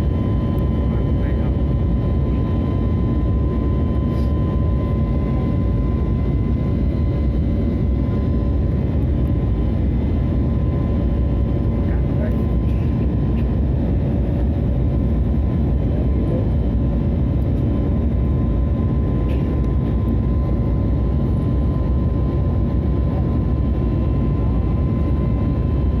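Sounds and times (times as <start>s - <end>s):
airliner engine drone in cabin: 0.0s - 26.0s.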